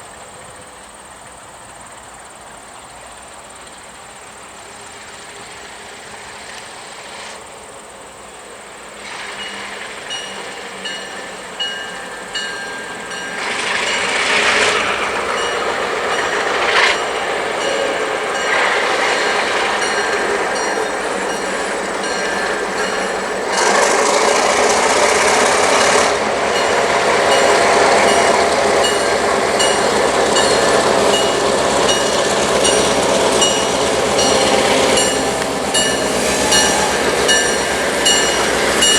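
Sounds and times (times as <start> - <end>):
diesel locomotive engine rumble: 0.0 - 38.9
train bell ringing: 9.0 - 38.9
train horn blasts: 9.1 - 38.9.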